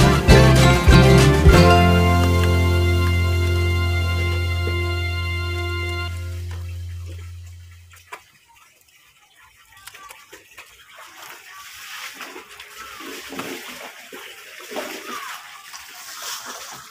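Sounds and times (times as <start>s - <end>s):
background music: 0.0s - 7.7s
water splashing and sloshing: 0.0s - 16.9s.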